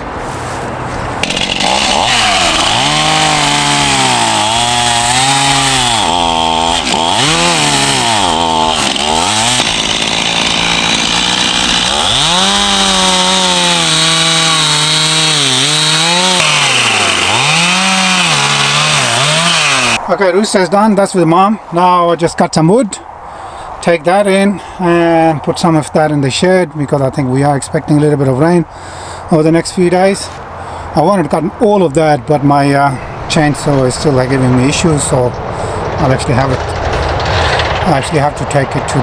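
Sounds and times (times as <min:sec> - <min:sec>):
chainsaw cutting wood: 0:01.1 - 0:20.0.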